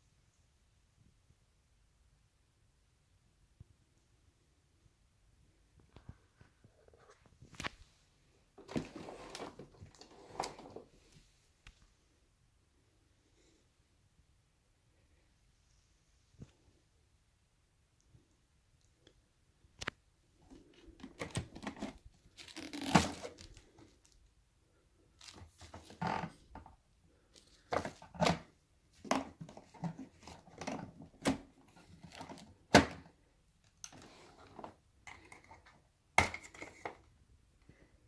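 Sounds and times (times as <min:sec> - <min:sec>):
handling clicks and rustling: 0:06.9 - 0:11.8.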